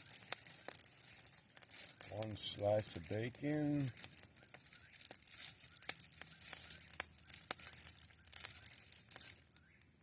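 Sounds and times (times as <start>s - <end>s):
campfire crackling: 0.0s - 10.0s.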